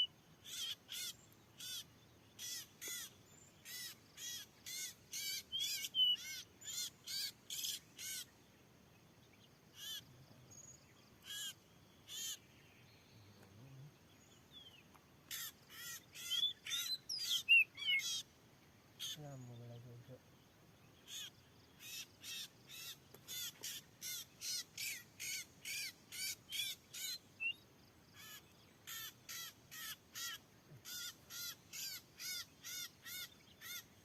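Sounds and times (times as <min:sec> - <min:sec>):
bird giving harsh calls: 0:00.0 - 0:08.3, 0:09.7 - 0:10.1, 0:11.2 - 0:12.4, 0:15.3 - 0:18.3, 0:19.0 - 0:19.2, 0:21.0 - 0:33.9.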